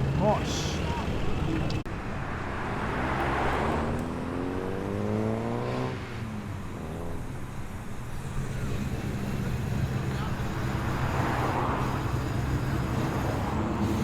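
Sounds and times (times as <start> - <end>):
car engine accelerating: 0.0 - 1.9, 2.6 - 14.0
engines idling low: 0.0 - 1.9, 7.2 - 14.0.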